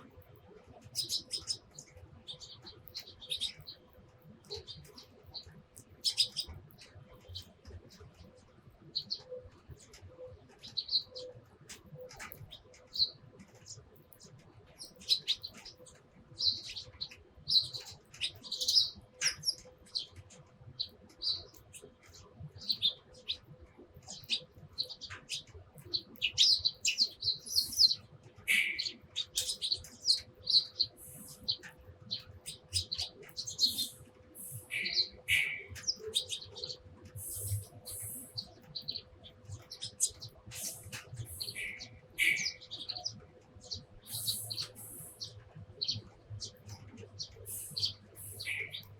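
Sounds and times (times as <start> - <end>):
sparrows chirping: 0.0 - 48.9
faint steady hum: 26.2 - 48.9.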